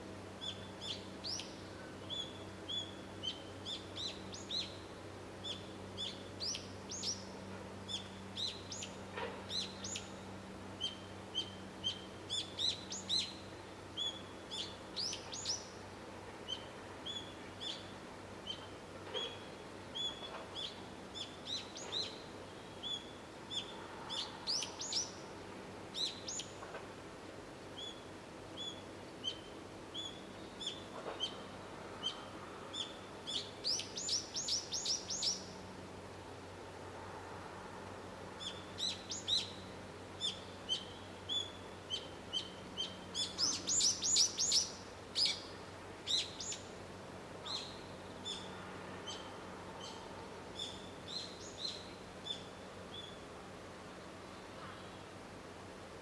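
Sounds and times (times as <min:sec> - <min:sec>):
small birds chirping: 0:00.4 - 0:04.8, 0:05.4 - 0:10.2, 0:28.6 - 0:35.6, 0:38.4 - 0:46.8.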